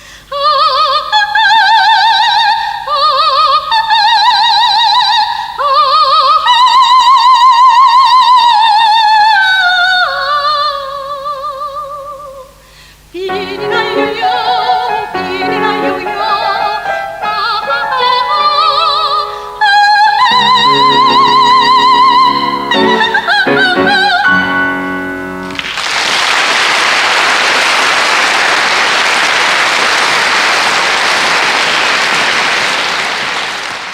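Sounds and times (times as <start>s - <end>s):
soprano singing with vibrato: 0.3s - 25.4s
instrumental accompaniment: 13.3s - 19.6s, 20.2s - 25.7s
audience applauding: 25.4s - 33.9s.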